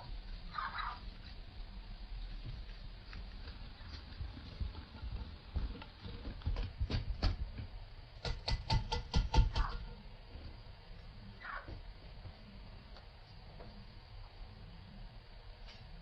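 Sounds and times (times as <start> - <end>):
sharp knocks: 8.2 - 9.8.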